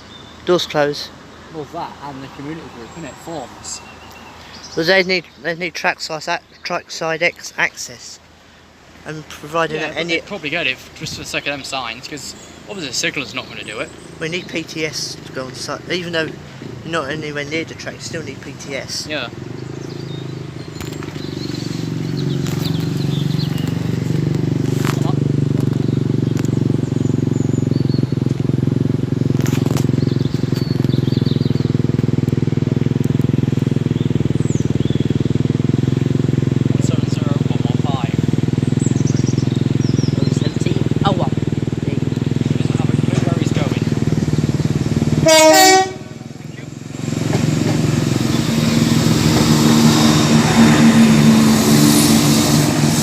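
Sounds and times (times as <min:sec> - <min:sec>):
bird chirps: 0:00.0 - 0:08.2, 0:09.2 - 0:32.2, 0:32.8 - 0:52.8
engine droning: 0:00.0 - 0:53.0.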